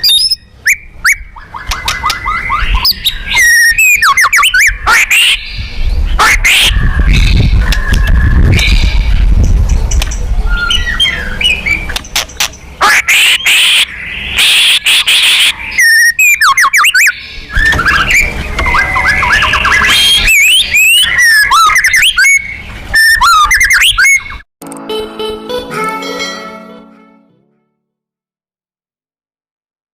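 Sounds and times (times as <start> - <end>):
bird singing loudly: 0.0 - 9.2, 12.8 - 24.4.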